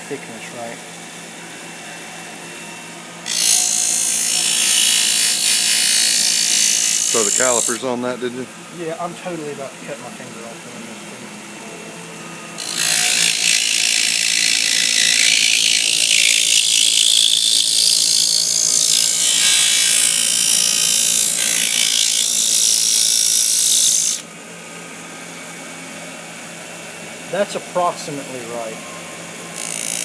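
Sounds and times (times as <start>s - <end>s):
power tool grinding plastic: 3.3s - 8.0s, 12.6s - 24.2s.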